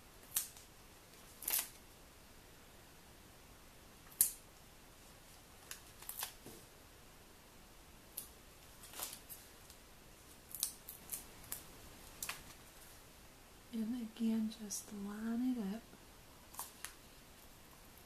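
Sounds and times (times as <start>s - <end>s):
paper rustling: 8.6s - 12.9s.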